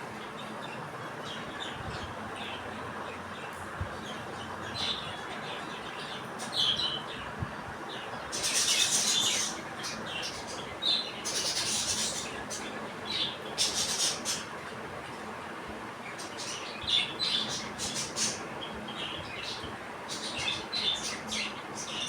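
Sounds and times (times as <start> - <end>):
budgerigars chirping: 8.3 - 14.5.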